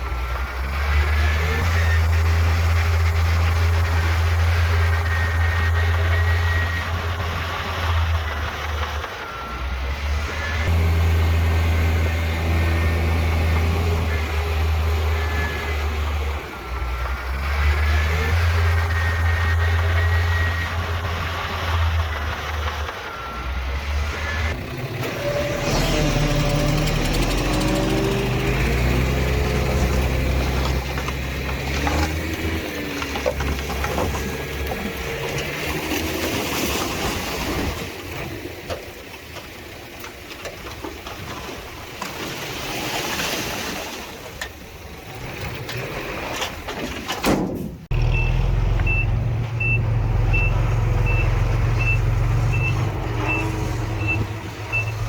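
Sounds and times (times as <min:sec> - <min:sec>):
diesel engines of heavy machinery: 0:00.0 - 0:55.0
reversing alarm beeping: 0:04.0 - 0:10.7, 0:47.9 - 0:55.0.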